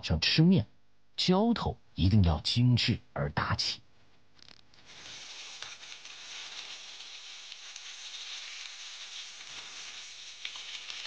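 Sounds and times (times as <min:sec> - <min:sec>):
faint oil crackles: 0:04.4 - 0:11.0
meat sizzling in hot oil: 0:04.8 - 0:11.0.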